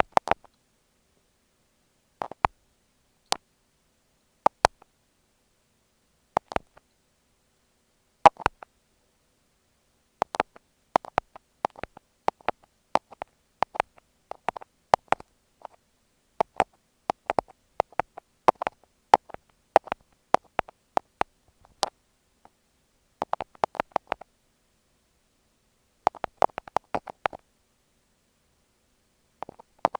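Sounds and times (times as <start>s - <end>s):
thumbtacks tapping microphone: 2.2s - 2.5s, 10.2s - 15.8s, 26.1s - 27.4s.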